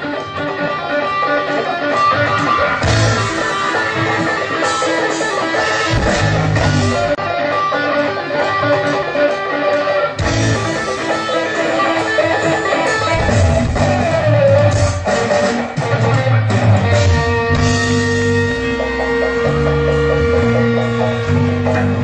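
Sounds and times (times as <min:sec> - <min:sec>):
guitar music: 0:00.0 - 0:22.0
pulsing bass line: 0:02.2 - 0:04.9, 0:05.8 - 0:07.2, 0:10.2 - 0:10.8, 0:13.2 - 0:15.0, 0:16.3 - 0:22.0.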